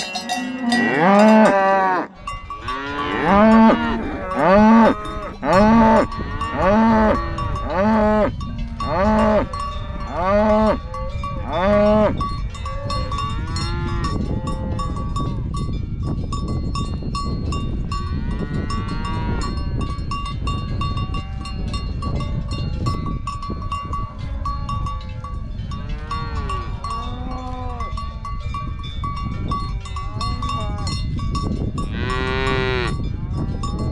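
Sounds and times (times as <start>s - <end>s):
cows mooing: 0.0s - 14.8s, 31.9s - 33.0s
cowbells clanking: 0.0s - 33.9s.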